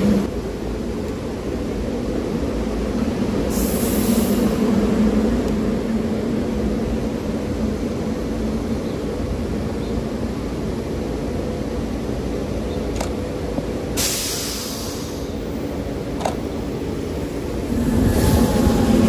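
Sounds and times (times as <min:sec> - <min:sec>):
electric train rumbling: 0:00.0 - 0:19.0
hiss burst: 0:03.5 - 0:04.6, 0:14.0 - 0:15.4.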